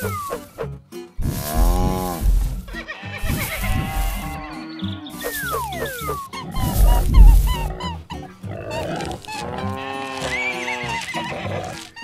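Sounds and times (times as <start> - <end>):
cartoon background music: 0.0 - 12.0
farm animal calls: 1.2 - 12.0.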